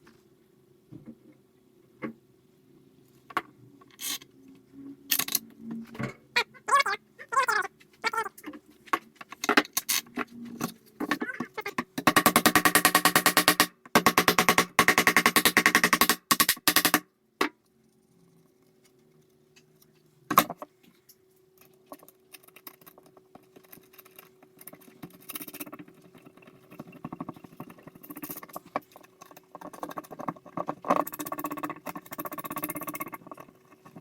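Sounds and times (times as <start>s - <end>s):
hard objects clicking and rattling: 7.9s - 17.6s, 21.6s - 34.0s.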